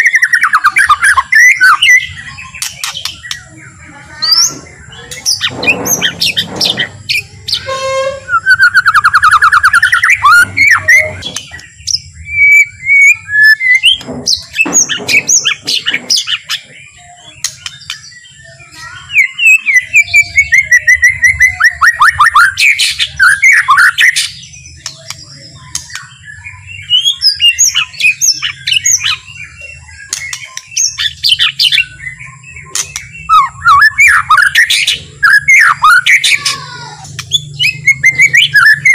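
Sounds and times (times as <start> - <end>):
shama singing whistles and trills: 0.0 - 3.5, 5.2 - 38.9.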